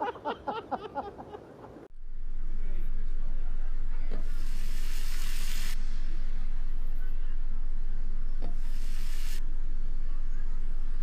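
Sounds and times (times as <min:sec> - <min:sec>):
faint hum: 0:00.7 - 0:11.0
steady low rumble: 0:01.9 - 0:11.0
hiss: 0:04.1 - 0:07.1, 0:08.4 - 0:09.5.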